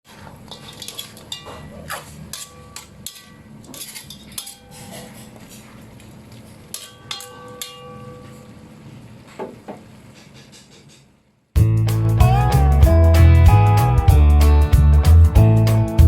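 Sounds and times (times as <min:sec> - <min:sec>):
kitchenware clinking and knocking: 0:00.5 - 0:05.4, 0:06.7 - 0:08.5.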